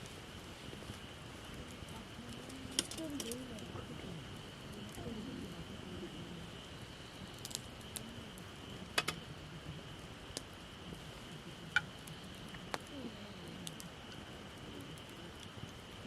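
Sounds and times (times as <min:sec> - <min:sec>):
dry twigs crackling and snapping: 0:00.3 - 0:03.8, 0:07.3 - 0:08.1.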